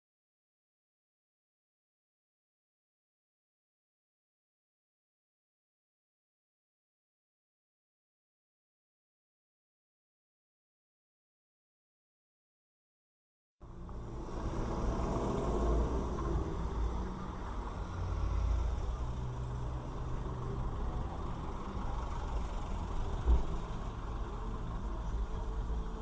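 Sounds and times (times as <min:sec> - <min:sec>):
engine and road rumble: 0:13.6 - 0:26.0.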